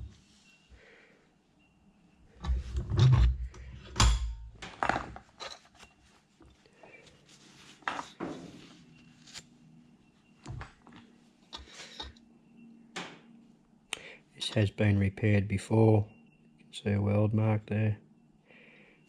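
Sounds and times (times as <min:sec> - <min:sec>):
metal parts clanking on workbench: 0:02.4 - 0:05.8.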